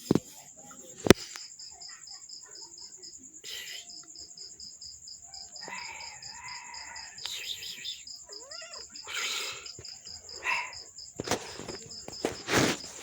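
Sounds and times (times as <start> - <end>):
cricket chirping: 0.0 - 13.0
brief rustle: 11.2 - 13.0.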